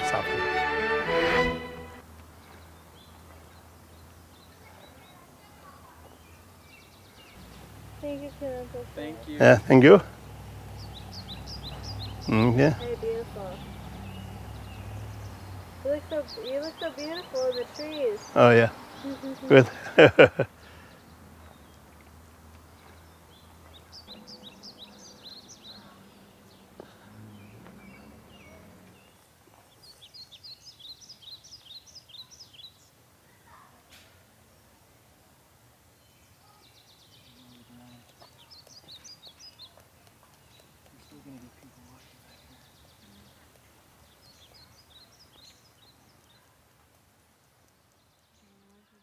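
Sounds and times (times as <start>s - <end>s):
faint outdoor background noise: 0.0s - 49.0s
songbird chirping: 0.0s - 49.0s
high bird chirps: 6.0s - 20.0s, 22.8s - 29.2s
low hum: 23.8s - 29.0s.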